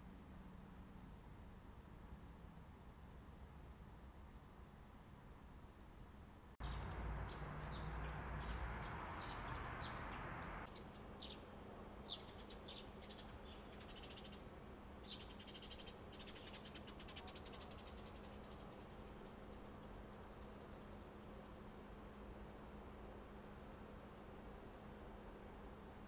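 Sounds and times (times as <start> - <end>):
low city hum: 0.0 - 26.0
birds chirping: 6.6 - 22.6.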